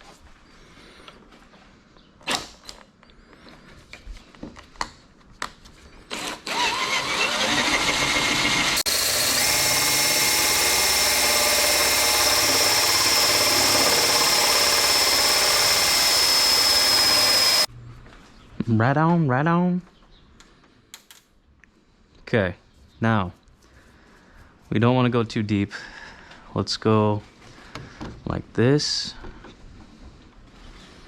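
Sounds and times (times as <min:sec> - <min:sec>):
cordless drill whining: 0:06.1 - 0:17.7.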